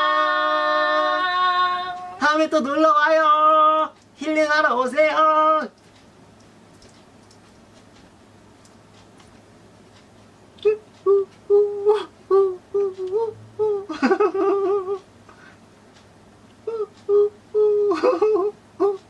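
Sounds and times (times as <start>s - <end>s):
high whimpering voice: 10.6s - 15.0s, 16.6s - 19.0s.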